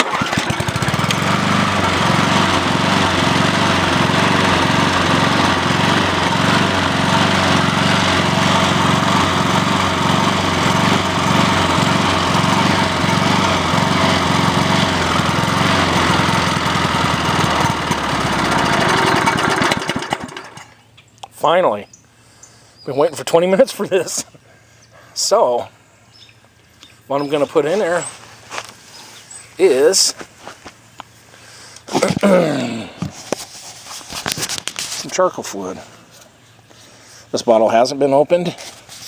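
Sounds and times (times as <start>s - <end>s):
lawn mower engine running: 0.0s - 21.6s.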